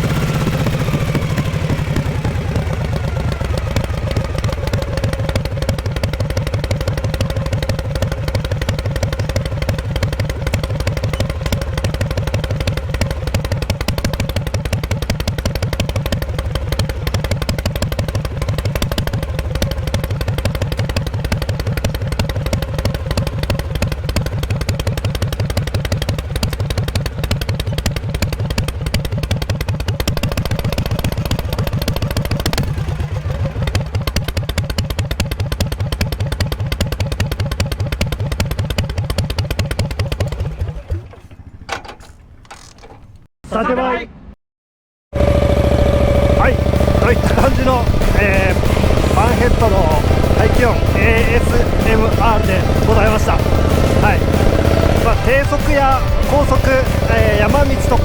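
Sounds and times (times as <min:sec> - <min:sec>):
motorcycle exhaust: 0:00.0 - 0:41.5, 0:45.2 - 0:58.0.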